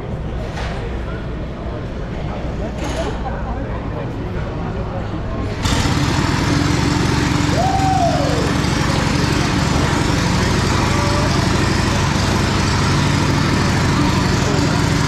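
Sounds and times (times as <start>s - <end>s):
motorcycle engine running: 5.6s - 15.0s.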